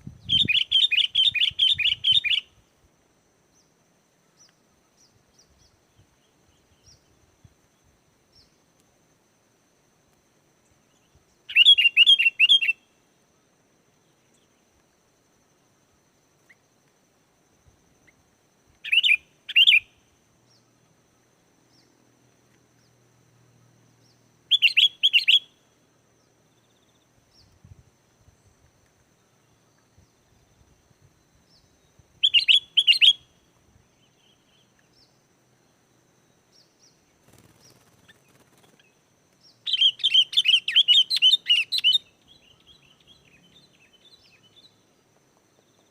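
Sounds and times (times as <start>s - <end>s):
bulbul calling: 0.2s - 2.6s, 18.8s - 19.9s, 24.5s - 25.6s, 32.2s - 33.3s, 39.6s - 44.6s.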